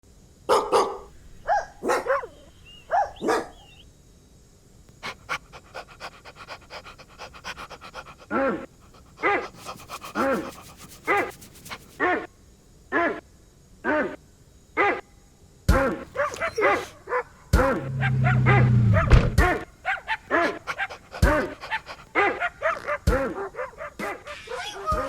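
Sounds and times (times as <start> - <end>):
dog barking: 0.5 - 3.8, 5.0 - 12.3, 15.8 - 25.0.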